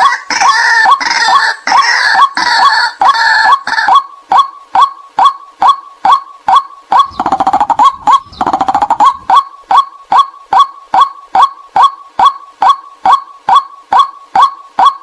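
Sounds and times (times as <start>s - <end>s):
bird kwak calls: 0.3s - 15.0s
bird chattering runs: 5.2s - 15.0s.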